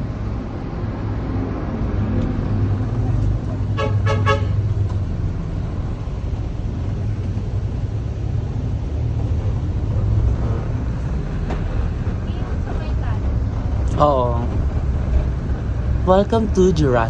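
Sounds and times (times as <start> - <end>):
road noise: 0.0 - 17.0
vehicle engine rumble: 0.0 - 17.0.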